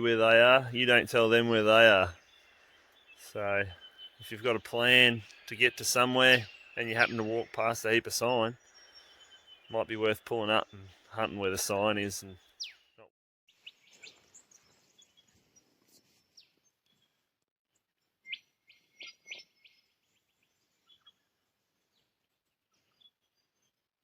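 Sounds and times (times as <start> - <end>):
faint bird chirps and whistles: 0.0 - 17.1, 18.2 - 21.3.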